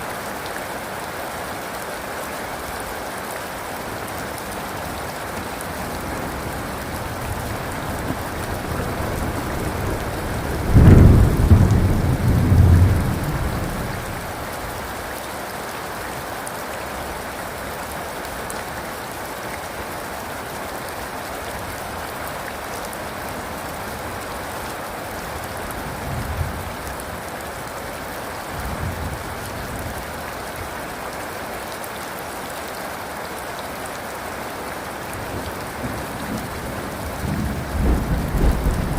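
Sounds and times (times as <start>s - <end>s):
heavy rain falling: 0.0s - 38.9s
thunder rumbling: 5.9s - 14.4s, 37.0s - 38.9s.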